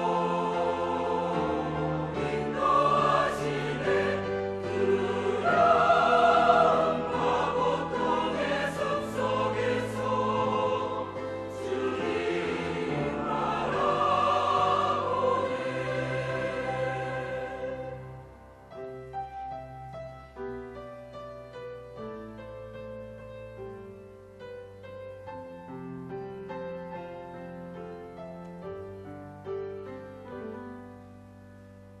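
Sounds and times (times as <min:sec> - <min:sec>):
church choir singing: 0:00.0 - 0:18.6.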